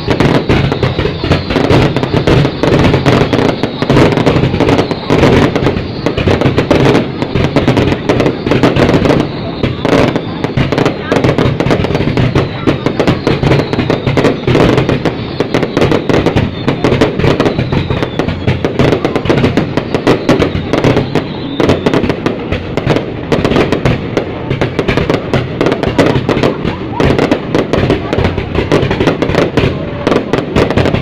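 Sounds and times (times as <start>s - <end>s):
fireworks crackling: 0.0s - 31.0s.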